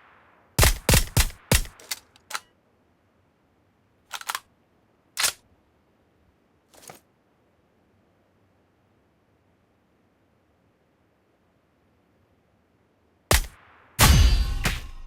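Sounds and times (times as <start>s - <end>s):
sharp mechanical clicks: 0.6s - 2.5s, 4.1s - 4.5s, 5.2s - 5.4s.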